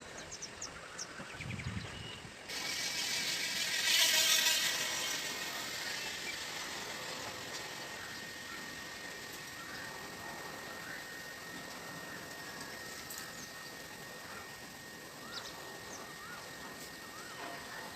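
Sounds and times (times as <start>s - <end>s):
rushing noise: 2.5s - 11.2s.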